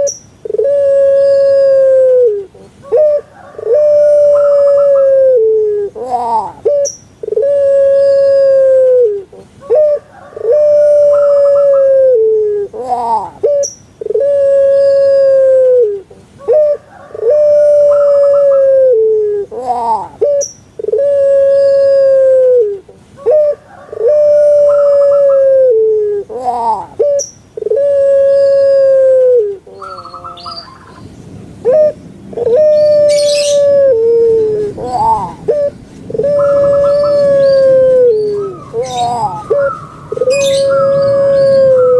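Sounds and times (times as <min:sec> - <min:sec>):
dove cooing: 0:00.0 - 0:41.9.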